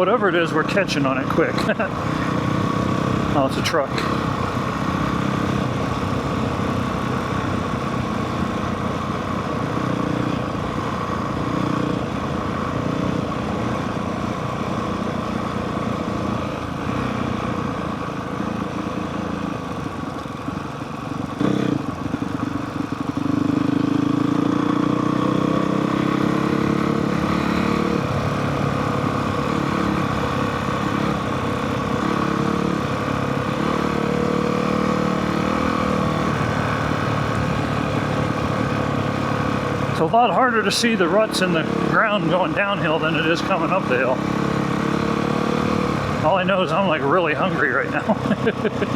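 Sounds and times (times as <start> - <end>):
dirt bike engine running: 0.0 - 48.9.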